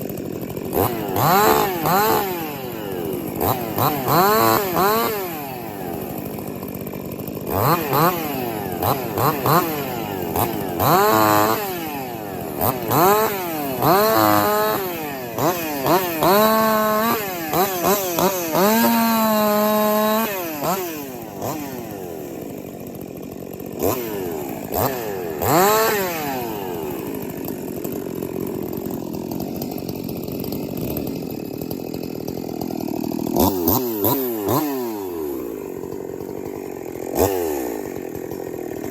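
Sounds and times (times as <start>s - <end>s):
chainsaw revving while cutting wood: 0.0s - 38.9s.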